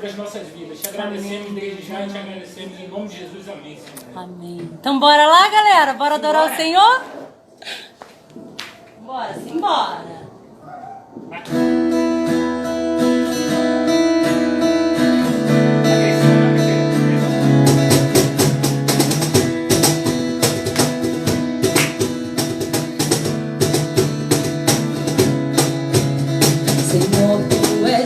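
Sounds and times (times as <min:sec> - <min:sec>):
acoustic guitar strumming: 0:11.4 - 0:28.0.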